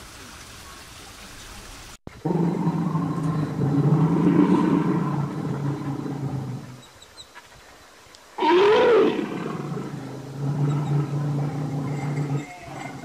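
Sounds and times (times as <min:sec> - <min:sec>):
bear roaring: 0:02.2 - 0:06.8, 0:08.4 - 0:13.0
low steady drone: 0:09.0 - 0:13.0.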